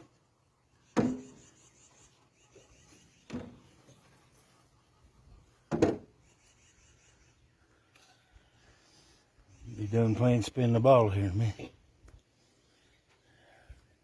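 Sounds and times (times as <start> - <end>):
sharp knocks: 1.0 - 1.3, 5.7 - 6.1.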